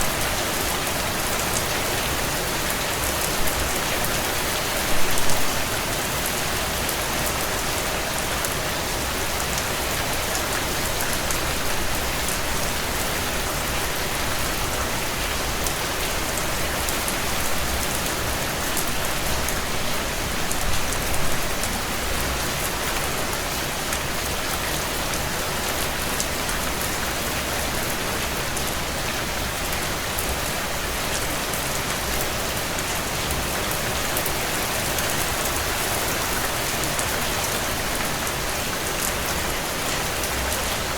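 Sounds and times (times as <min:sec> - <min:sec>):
heavy rain on a tin roof: 0:00.0 - 0:40.9.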